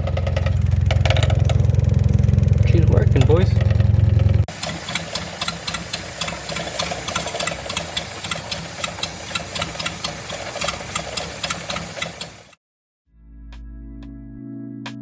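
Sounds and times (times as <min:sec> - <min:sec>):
truck engine idling: 0:00.0 - 0:12.6
fast regular ticking: 0:02.3 - 0:12.6.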